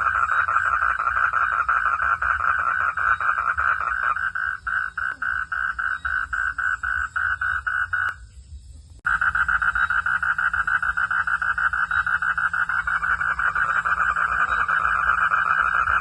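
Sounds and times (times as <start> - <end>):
frog calling in pulses: 0.0 - 8.2, 9.1 - 16.0.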